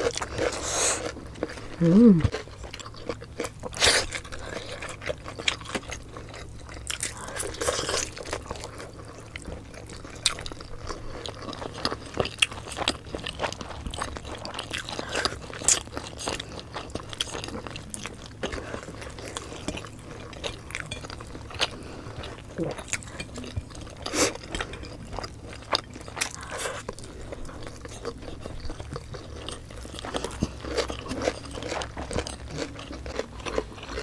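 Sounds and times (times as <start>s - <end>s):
people chewing and biting: 0.0s - 34.0s.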